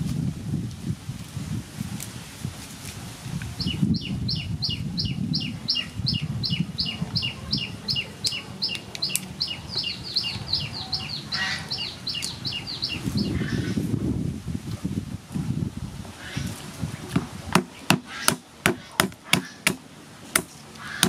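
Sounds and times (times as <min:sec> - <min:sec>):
bird chirping rapidly: 0:03.6 - 0:13.7.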